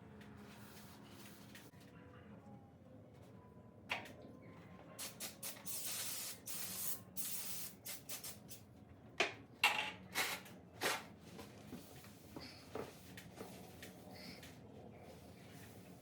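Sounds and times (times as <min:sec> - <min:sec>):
aerosol can spraying: 0:05.0 - 0:08.6.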